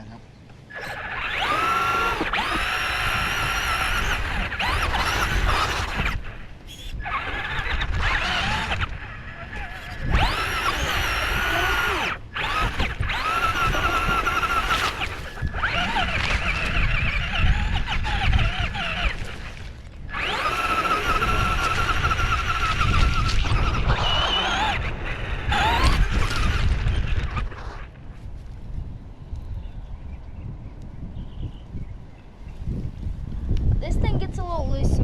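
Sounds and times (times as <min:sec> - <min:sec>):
small electric motor whining: 0:00.7 - 0:28.5.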